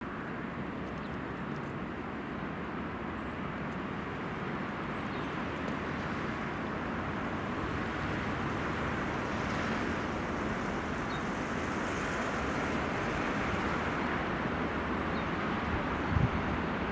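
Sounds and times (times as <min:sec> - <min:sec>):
freight train running noise: 0:03.9 - 0:16.9.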